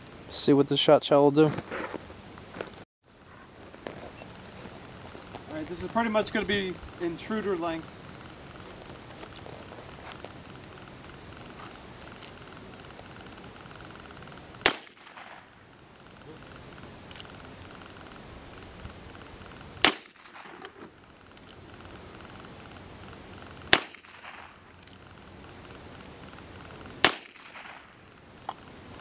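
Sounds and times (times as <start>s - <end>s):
revolver shots: 14.6s - 15.5s, 19.8s - 20.9s, 23.7s - 24.6s, 27.0s - 28.0s.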